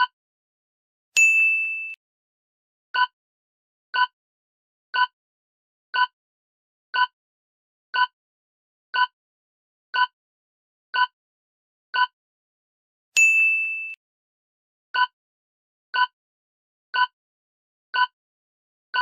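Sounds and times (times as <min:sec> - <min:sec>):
electronic timer ticks: 0:18.0 - 0:18.2.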